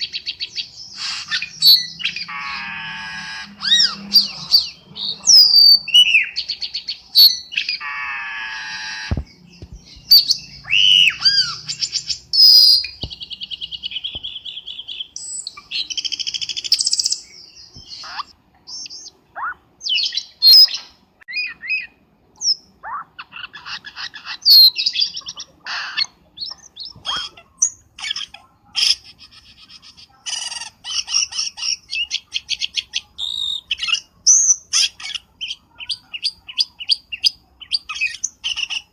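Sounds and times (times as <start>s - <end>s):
bird whistling and chattering: 0.0s - 38.9s.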